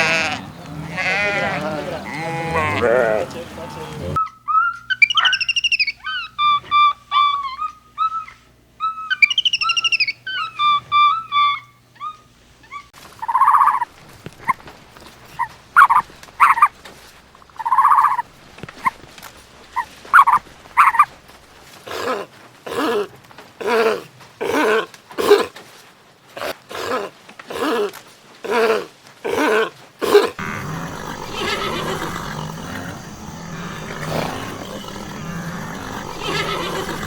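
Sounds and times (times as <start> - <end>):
birds chirping: 0.0 - 16.9, 30.4 - 37.0.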